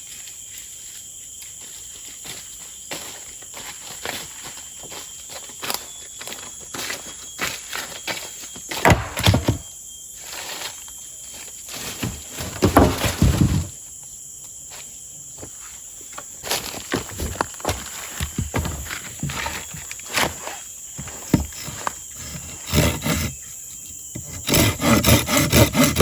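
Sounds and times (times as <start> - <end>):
footsteps in dry undergrowth: 0.0 - 9.6, 10.2 - 13.7, 14.7 - 22.1
high-pitched insect drone: 0.0 - 26.0.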